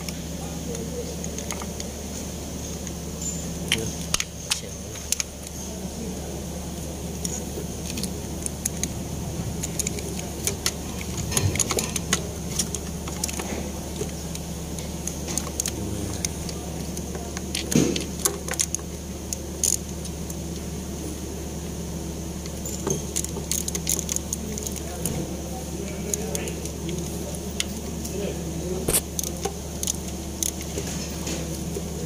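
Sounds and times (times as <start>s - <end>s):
steady low hum: 0.0s - 32.0s
metal tools clinking and rattling: 2.7s - 5.2s.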